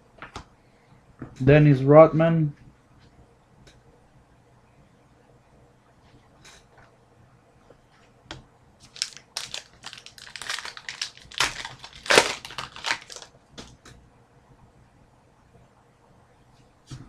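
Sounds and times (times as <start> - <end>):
plastic wrapper crinkling: 8.8 - 13.4.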